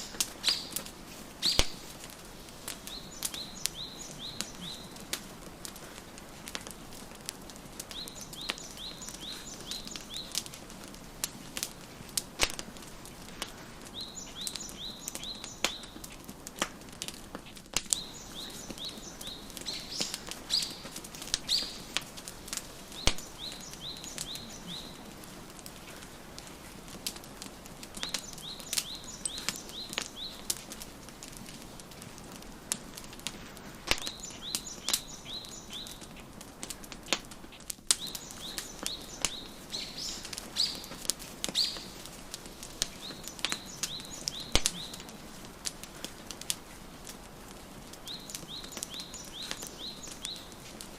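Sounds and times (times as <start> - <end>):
bird chirping: 0.0 - 0.8, 2.8 - 5.0, 7.9 - 10.4, 13.9 - 16.0, 17.9 - 22.0, 22.9 - 25.1, 28.0 - 30.5, 34.0 - 36.1, 37.5 - 45.2, 48.0 - 50.6
wood fire crackling: 0.0 - 50.9.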